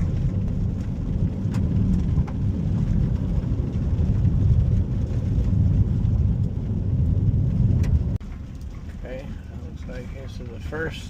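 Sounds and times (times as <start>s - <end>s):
vehicle rumbling on road: 0.0s - 11.0s.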